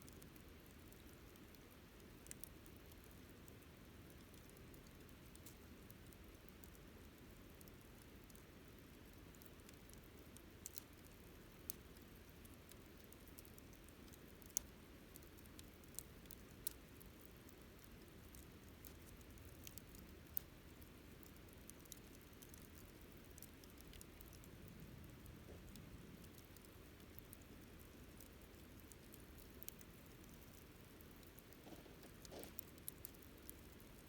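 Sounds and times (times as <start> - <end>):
campfire crackling and popping: 8.3 - 34.0.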